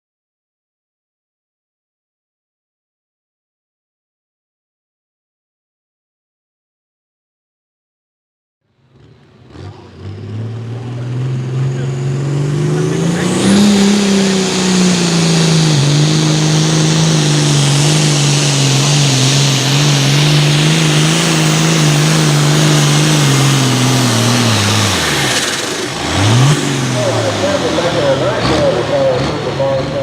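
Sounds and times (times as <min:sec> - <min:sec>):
tractor engine at full throttle: 0:08.7 - 0:30.0.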